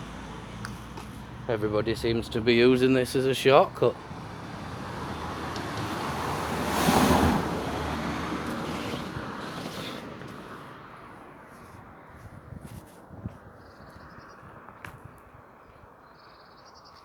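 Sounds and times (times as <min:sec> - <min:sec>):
vehicle passing by: 0:00.0 - 0:12.5.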